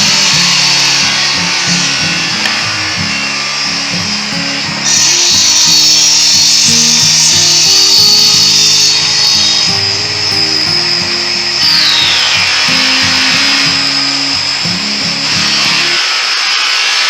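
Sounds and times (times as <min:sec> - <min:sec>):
saw blade whining: 0:00.0 - 0:17.0
background music: 0:08.2 - 0:16.0.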